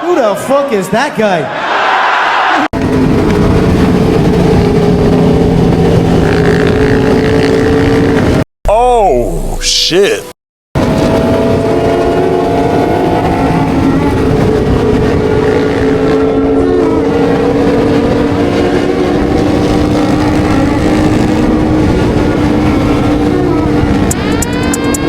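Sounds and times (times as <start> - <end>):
motorcycle engines at high revs: 2.8 - 8.4, 11.1 - 25.0.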